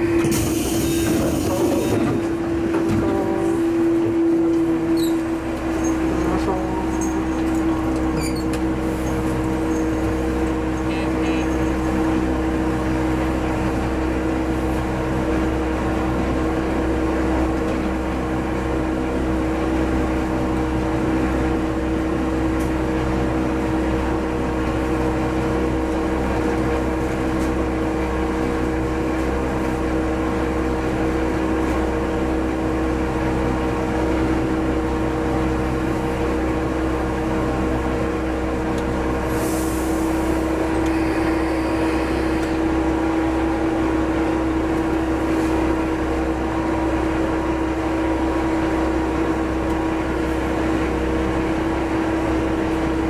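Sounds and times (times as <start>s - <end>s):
diesel railcar engine drone: 0.0s - 53.0s
wheel-on-rail rumble: 0.0s - 53.0s
constant humming tones: 40.4s - 51.6s.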